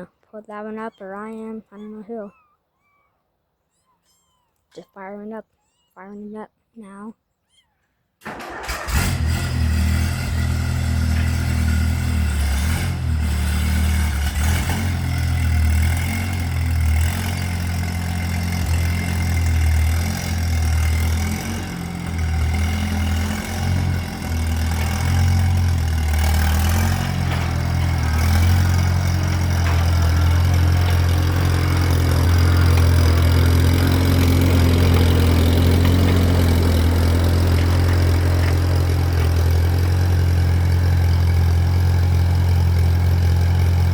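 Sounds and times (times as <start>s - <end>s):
tractor engine idling: 8.2s - 43.9s.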